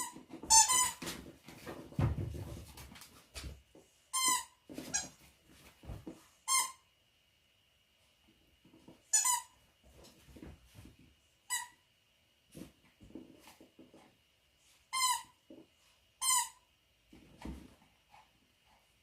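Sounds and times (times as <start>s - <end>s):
squeaky dog toy squeaking: 0.0s - 1.0s, 4.1s - 5.1s, 6.5s - 6.8s, 9.1s - 9.6s, 14.9s - 15.4s, 16.2s - 16.6s.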